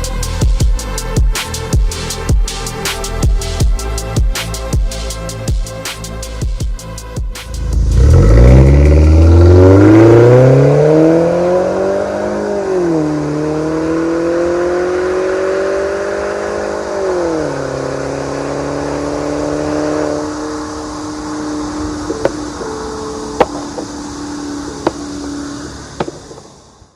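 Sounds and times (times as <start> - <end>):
car engine accelerating: 7.4 - 26.6.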